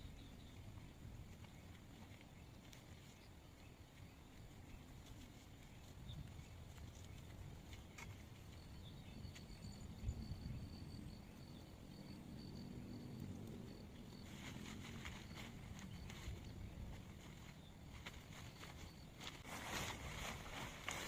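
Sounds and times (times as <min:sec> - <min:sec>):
high steady insect trill: 0:08.5 - 0:19.5.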